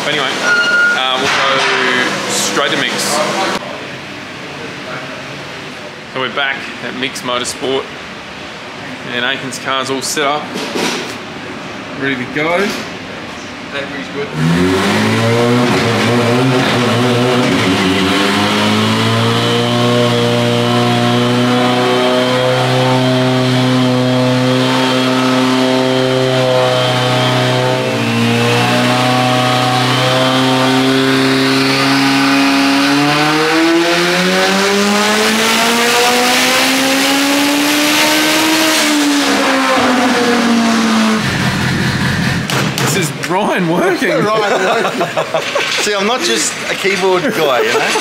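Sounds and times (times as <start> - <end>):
turbocharged engine on a dyno: 0.0 - 43.5.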